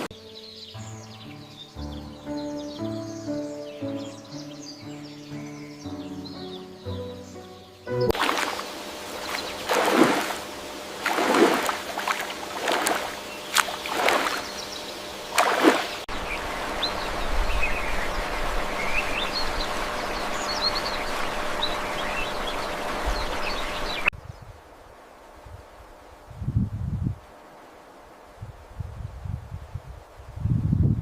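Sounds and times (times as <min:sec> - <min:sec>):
small birds chirping: 0:00.0 - 0:24.5
flowing water rushing: 0:08.1 - 0:24.1
water splashing: 0:08.1 - 0:24.1.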